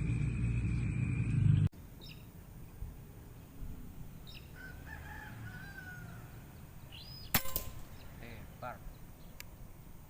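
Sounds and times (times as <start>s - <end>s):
low rumble: 0.0s - 1.7s
birds chirping: 0.0s - 10.0s
wavering whistled bird call: 6.9s - 7.4s.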